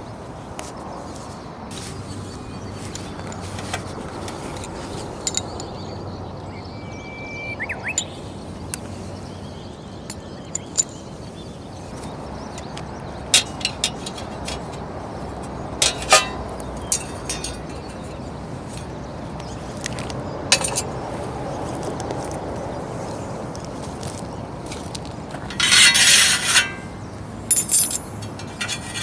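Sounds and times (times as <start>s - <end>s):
metal and glass clinks: 5.1s - 5.9s, 10.1s - 11.1s, 15.8s - 18.2s, 25.5s - 29.0s.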